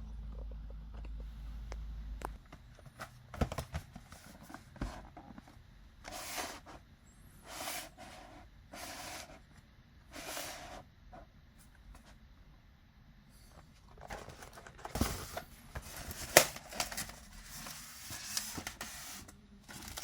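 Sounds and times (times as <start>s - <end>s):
packaging rustling: 13.8s - 20.0s.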